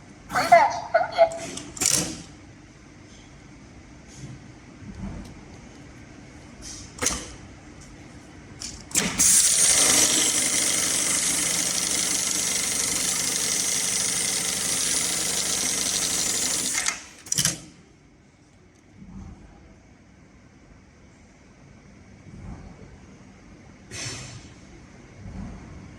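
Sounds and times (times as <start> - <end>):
sewing machine stitching: 8.9 - 17.6.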